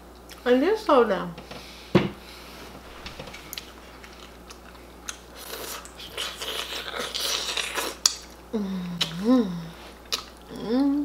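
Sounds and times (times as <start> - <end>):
lip smacking: 3.4 - 8.2, 10.0 - 10.7
open-mouth chewing: 3.4 - 8.4, 10.0 - 10.7.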